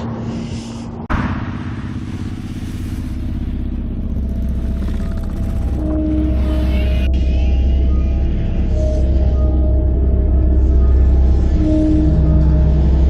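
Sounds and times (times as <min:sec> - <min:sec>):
motorcycle engines rumbling: 0:00.0 - 0:07.8.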